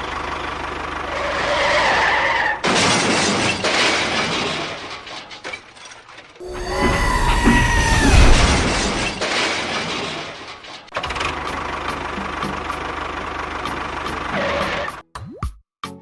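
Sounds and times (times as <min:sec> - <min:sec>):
loud noisy rush: 0:06.4 - 0:09.2
short rising whooshes: 0:06.4 - 0:09.2.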